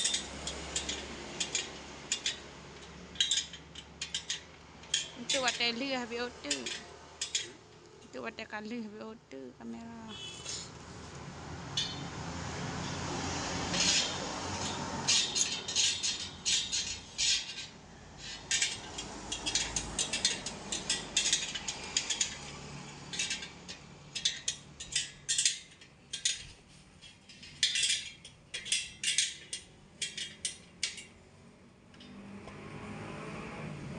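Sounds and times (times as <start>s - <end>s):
hand tools clicking and ratcheting: 0.0s - 8.0s, 11.7s - 12.2s, 12.8s - 31.2s.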